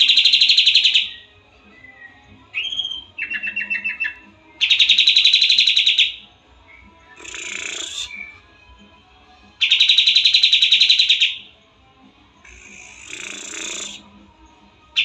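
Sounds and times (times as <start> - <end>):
bird rattling trill: 7.2 - 8.1, 9.6 - 11.4, 12.5 - 14.0.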